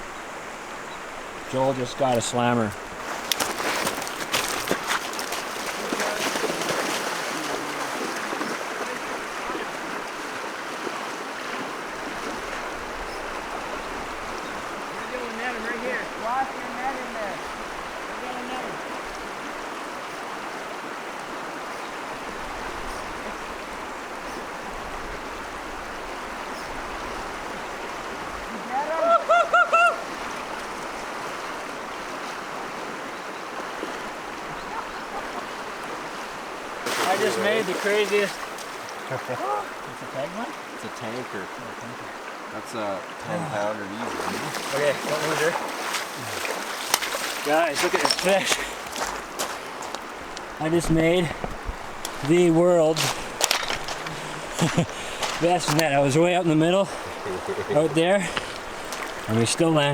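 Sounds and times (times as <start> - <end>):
river water rushing: 0.0 - 59.9
person shouting excitedly: 28.6 - 30.0.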